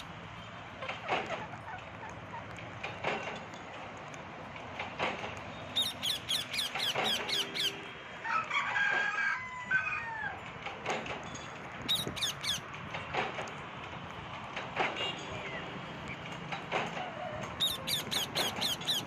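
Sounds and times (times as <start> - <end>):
parrots chirping: 5.7 - 7.9, 11.9 - 12.6, 17.6 - 19.0
parrot warbling call: 5.8 - 7.8, 17.6 - 19.0.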